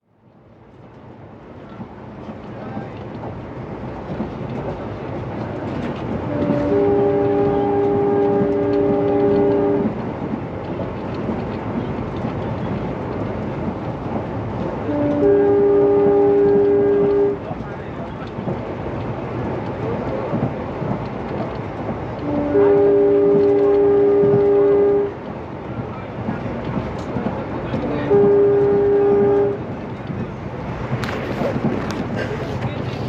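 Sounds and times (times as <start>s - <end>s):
diesel locomotive engine hum: 0.1s - 33.0s
multi-tone air horn: 6.3s - 9.9s, 14.9s - 17.4s, 22.2s - 25.1s, 27.8s - 29.6s.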